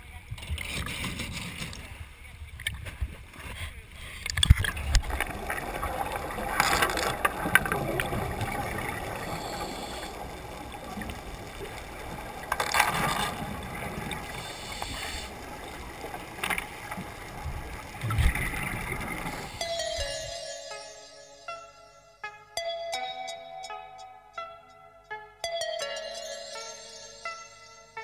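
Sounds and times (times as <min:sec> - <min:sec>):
rushing water: 0:04.2 - 0:20.5.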